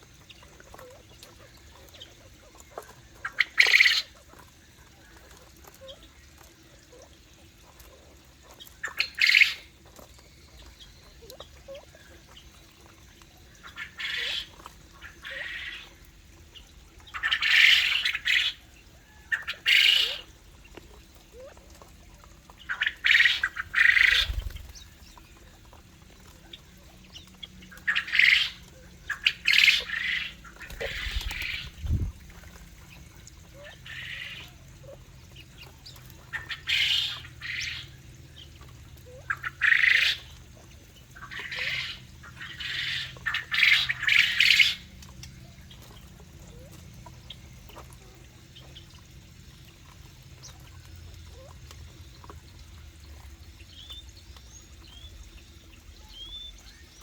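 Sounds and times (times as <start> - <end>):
birds squawking harshly: 22.7 - 24.8, 27.8 - 31.9.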